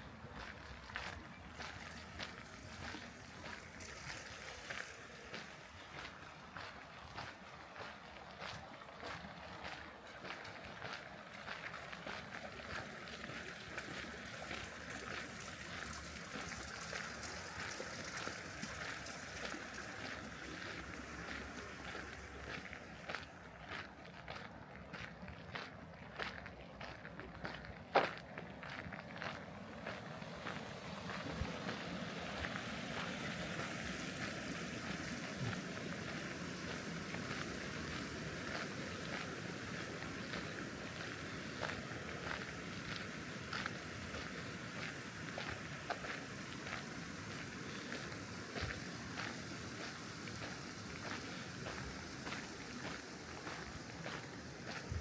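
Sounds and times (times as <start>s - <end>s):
background hiss: 0.0s - 23.9s, 27.4s - 55.0s
steady rushing outdoor noise: 0.0s - 24.4s, 26.8s - 55.0s
footsteps walking: 13.7s - 55.0s.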